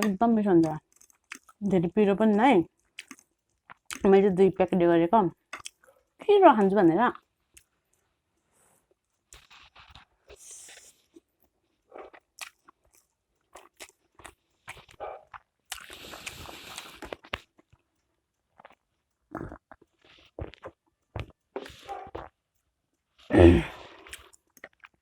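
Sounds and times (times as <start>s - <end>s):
wet mouth clicks and smacks: 0.0s - 1.6s, 2.8s - 4.1s, 5.5s - 5.8s, 12.1s - 17.5s
chewing noodles: 0.0s - 4.1s, 5.5s - 6.2s, 9.1s - 22.4s, 23.7s - 25.0s.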